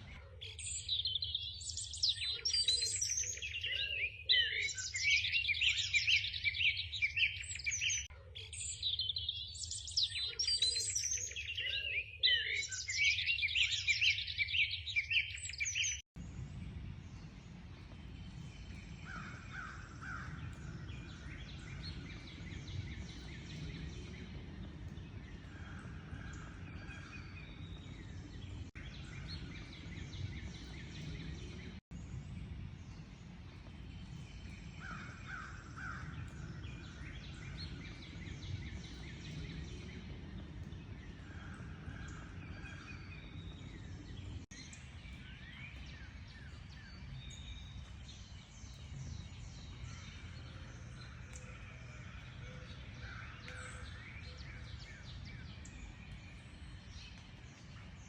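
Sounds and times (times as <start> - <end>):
birds chirping and calling: 0.0 - 16.0, 18.1 - 31.8, 33.9 - 58.0
low outdoor background rumble: 16.2 - 58.0.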